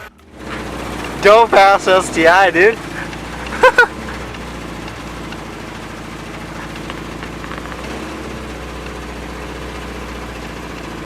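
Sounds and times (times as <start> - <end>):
car engine idling roughly: 0.0 - 11.0.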